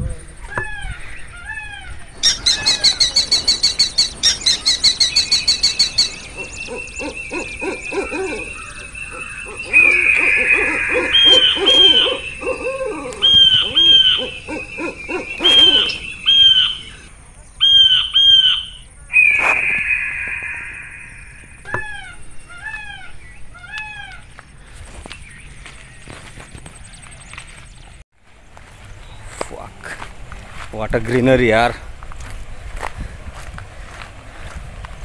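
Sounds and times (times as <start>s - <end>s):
bird downward-sliding calls: 0.4s - 24.2s
steady high buzz: 18.6s - 21.6s
bird rattling high notes: 19.1s - 21.5s.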